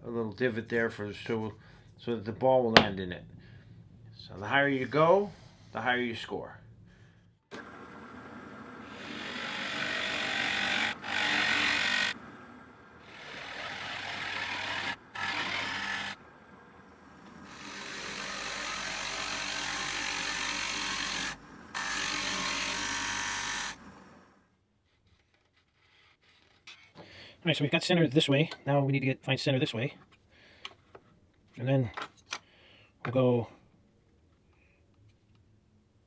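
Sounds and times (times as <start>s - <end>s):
motor hum: 6.6s - 24.5s
router bit cutting wood: 7.5s - 24.3s.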